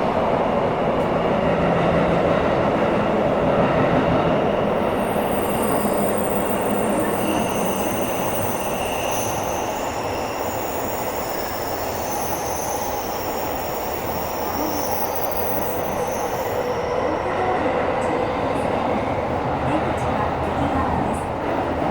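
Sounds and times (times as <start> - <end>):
subway train rumbling: 0.0 - 21.9
high-pitched wheel squeals: 4.6 - 17.7.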